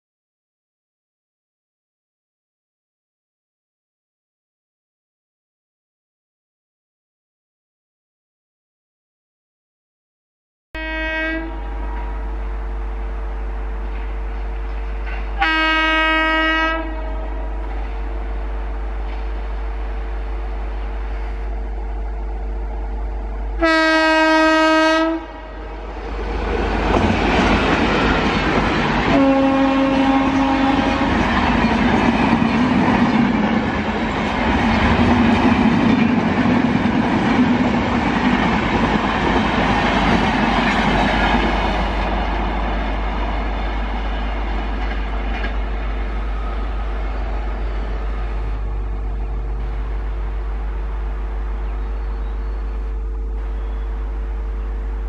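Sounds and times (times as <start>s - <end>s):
locomotive horn blasts: 10.8s - 12.9s, 15.0s - 18.4s, 23.6s - 26.1s, 29.0s - 31.5s
passenger train rushing past: 10.8s - 55.0s.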